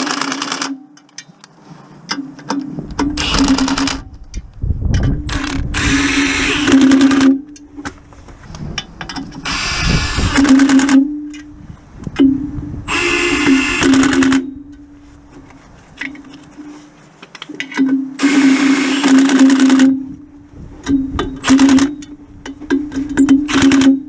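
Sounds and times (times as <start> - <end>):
power tool hammering rattle: 5.2 - 7.5, 12.9 - 14.5, 18.2 - 20.0, 20.9 - 22.1, 22.7 - 24.0.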